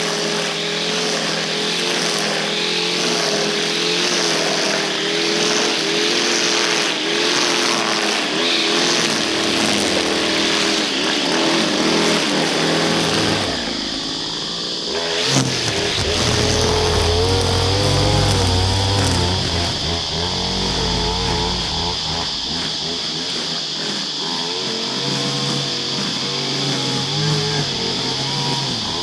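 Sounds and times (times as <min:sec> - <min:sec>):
small two-stroke engine high revs: 0:00.0 - 0:29.0
deep low hum: 0:13.4 - 0:23.8.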